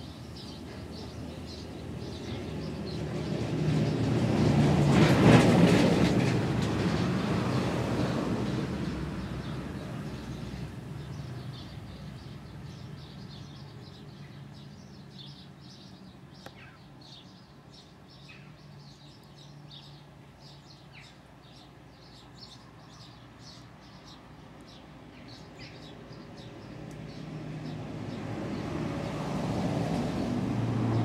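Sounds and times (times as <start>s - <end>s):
small birds chirping: 0.0s - 4.0s, 9.2s - 29.2s.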